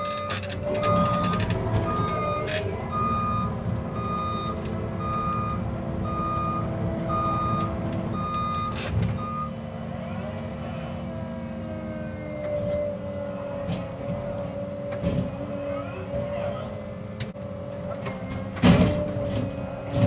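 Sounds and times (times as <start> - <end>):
travel alarm beeping: 0.0 - 9.6
excavator engine running: 0.0 - 20.0.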